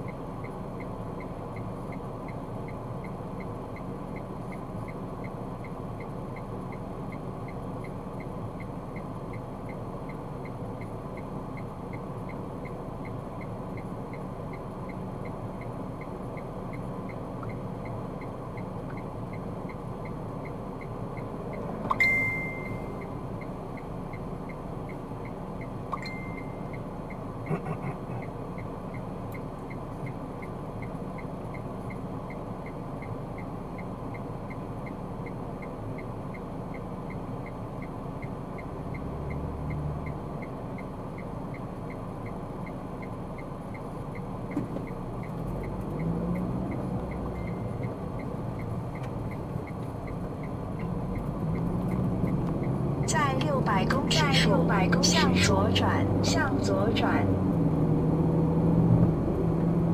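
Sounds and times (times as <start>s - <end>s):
faint regular ticking: 0.0s - 27.6s, 28.2s - 57.7s
car driving rumble inside cabin: 0.0s - 59.9s
short beep: 21.9s - 23.0s, 25.9s - 26.6s.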